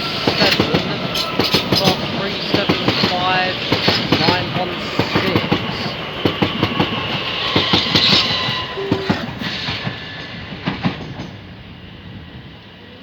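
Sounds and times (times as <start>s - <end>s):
train wheels clacking over rail joints: 0.0s - 11.6s.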